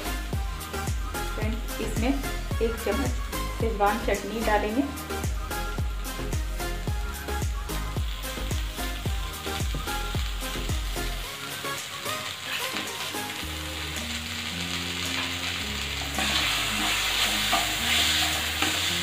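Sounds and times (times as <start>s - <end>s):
soft background music: 0.0s - 19.0s
vegetables sizzling in a pan: 0.0s - 19.0s
spatula stirring: 16.2s - 19.0s.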